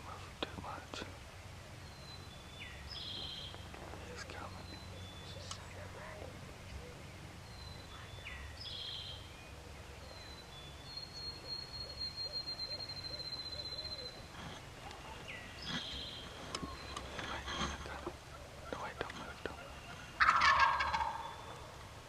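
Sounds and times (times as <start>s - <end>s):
low background rumble: 0.0s - 12.2s, 13.0s - 22.0s
birds whistling: 1.7s - 5.9s, 6.7s - 21.8s
bird trill: 6.8s - 21.8s
owl hooting: 11.0s - 21.8s.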